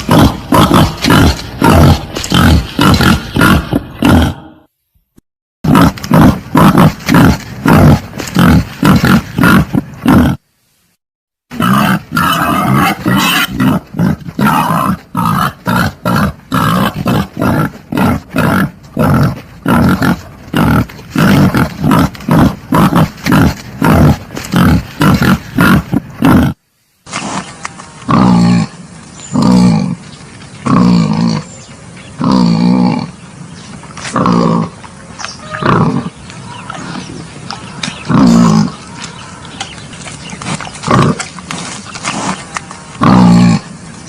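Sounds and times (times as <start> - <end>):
wild boar grunting: 0.0 - 4.7, 11.5 - 30.0, 30.6 - 33.2, 34.0 - 34.8, 35.5 - 43.7.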